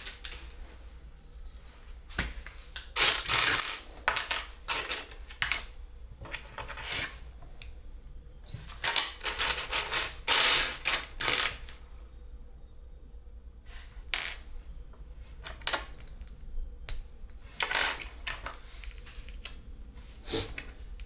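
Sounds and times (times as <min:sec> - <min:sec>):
plastic pieces clattering: 0:02.8 - 0:05.7, 0:08.7 - 0:11.6, 0:17.6 - 0:19.6.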